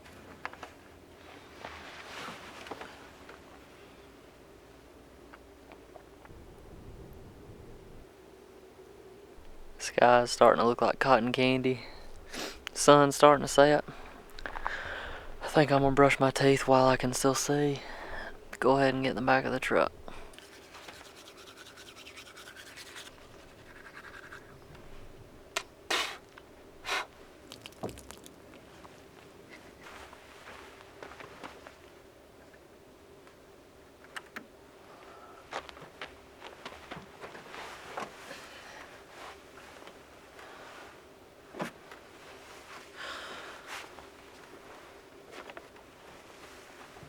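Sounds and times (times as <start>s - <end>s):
toothbrush scrubbing teeth: 20.3s - 24.5s.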